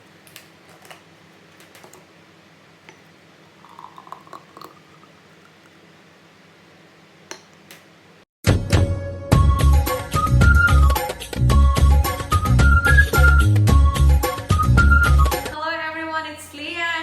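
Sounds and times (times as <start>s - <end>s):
loud music: 8.5s - 15.6s.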